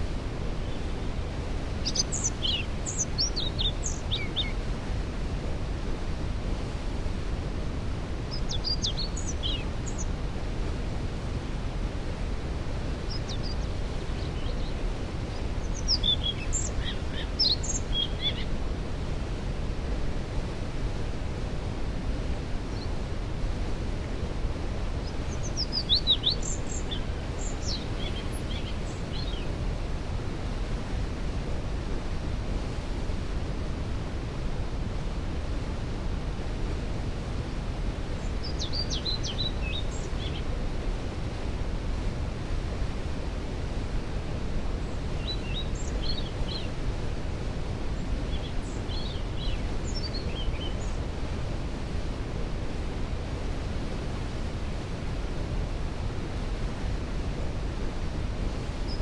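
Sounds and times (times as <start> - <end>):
songbirds singing: 0.5 - 5.0, 8.2 - 10.8, 12.8 - 18.6, 22.7 - 23.0, 24.9 - 29.8, 38.1 - 40.8, 44.8 - 51.4, 58.7 - 59.0.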